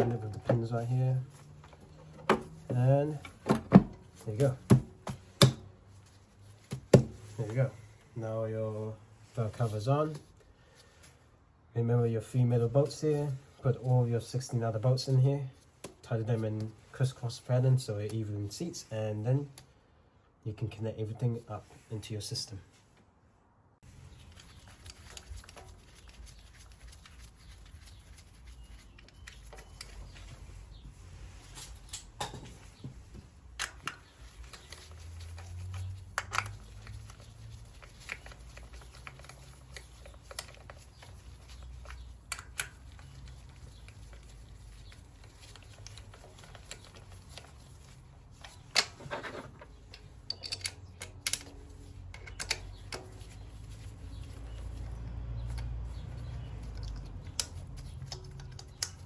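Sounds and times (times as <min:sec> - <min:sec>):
clicks and knocks of hand tools: 0:56.5 - 0:59.0.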